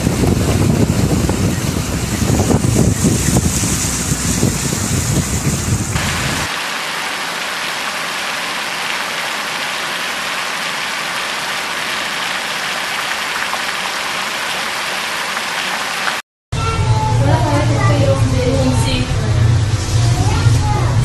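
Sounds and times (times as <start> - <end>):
wind buffeting microphone: 0.0 - 6.5
heavy rain hissing: 0.0 - 16.2.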